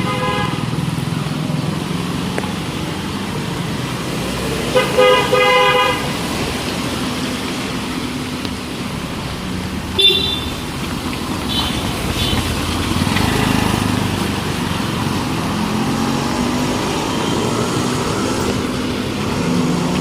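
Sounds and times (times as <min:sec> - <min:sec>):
car horn toots: 0:00.0 - 0:00.7, 0:04.7 - 0:06.2, 0:10.0 - 0:10.8, 0:11.4 - 0:12.5
road traffic passing: 0:00.0 - 0:20.0.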